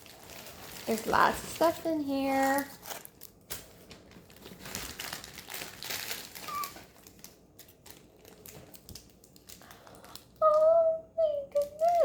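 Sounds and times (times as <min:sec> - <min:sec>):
packaging rustling and crinkling: 0:00.0 - 0:10.6.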